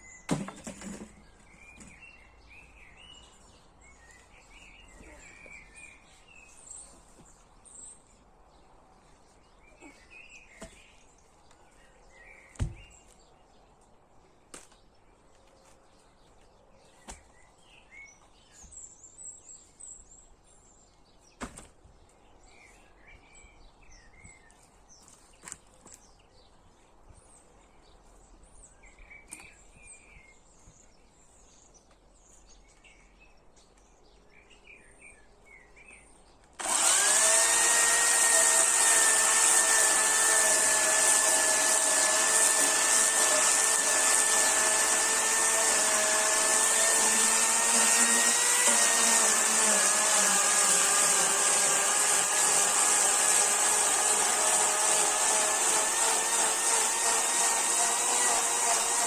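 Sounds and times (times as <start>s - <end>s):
chainsaw running: 36.6s - 59.0s.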